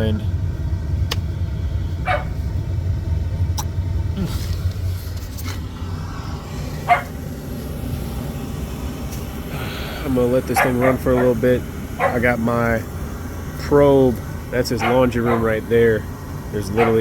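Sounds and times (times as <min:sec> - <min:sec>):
hvac unit humming: 0:00.0 - 0:17.0
dog barking: 0:02.0 - 0:02.4, 0:06.9 - 0:07.1, 0:10.5 - 0:11.4, 0:12.0 - 0:12.4, 0:14.8 - 0:15.6, 0:16.6 - 0:17.0.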